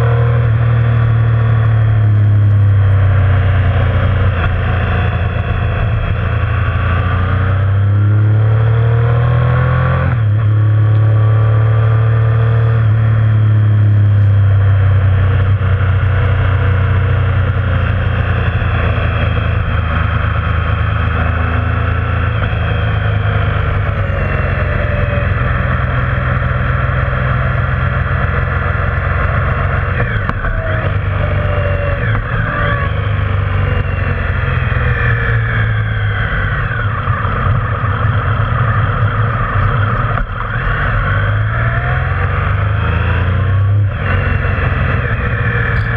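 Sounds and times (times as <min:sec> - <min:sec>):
motorcycle engine riding: 0:00.0 - 0:45.9.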